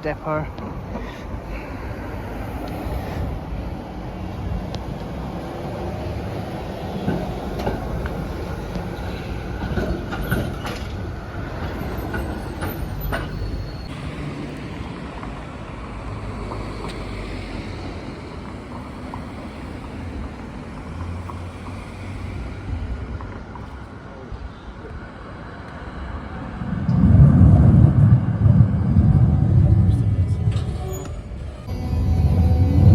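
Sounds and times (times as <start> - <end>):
tram running on track: 0.0 - 32.9
loud low rumble: 26.5 - 32.9.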